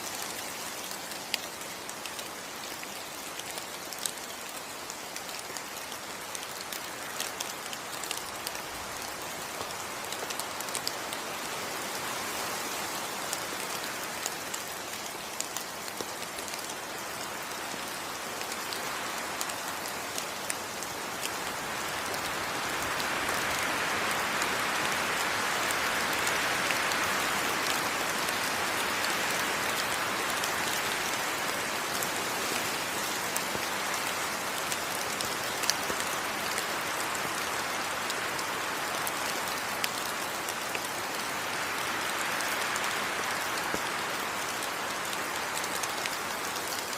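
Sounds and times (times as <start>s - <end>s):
heavy rain on foliage: 0.0s - 46.9s.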